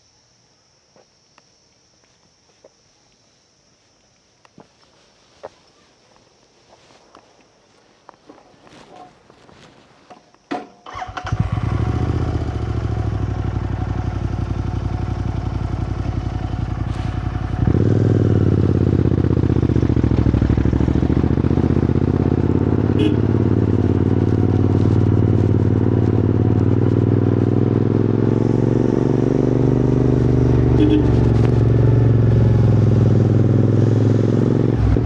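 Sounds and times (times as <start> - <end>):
motorcycle engine starting and idling: 10.5 - 35.0.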